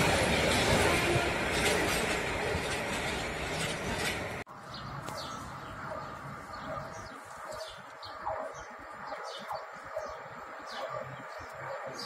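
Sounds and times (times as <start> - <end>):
freight train passing: 0.0 - 6.8
small birds chirping: 4.6 - 12.0.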